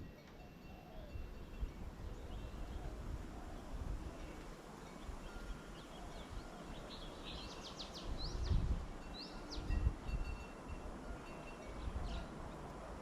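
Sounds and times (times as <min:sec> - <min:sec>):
small birds chipping: 0:00.2 - 0:09.9.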